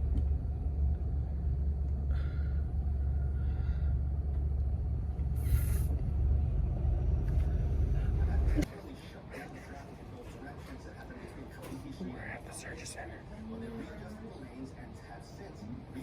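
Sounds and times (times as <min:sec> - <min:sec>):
road rumble inside car: 0:00.0 - 0:08.7
brief hiss: 0:05.4 - 0:05.9.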